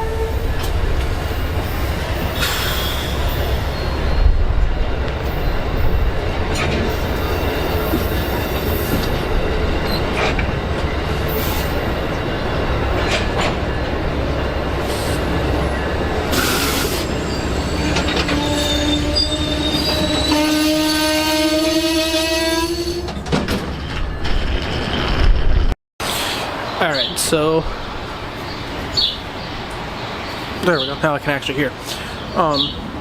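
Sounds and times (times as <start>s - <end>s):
rail clicks and squeals: 0.0s - 32.9s
train rail rumble: 0.0s - 33.0s.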